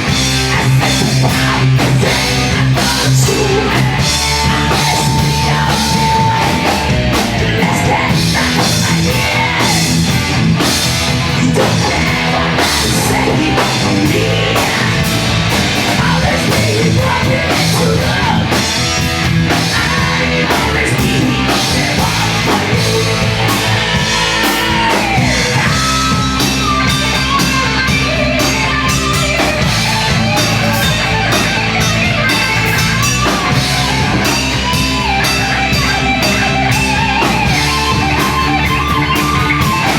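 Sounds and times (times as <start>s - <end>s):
live heavy rock band: 0.0s - 39.9s.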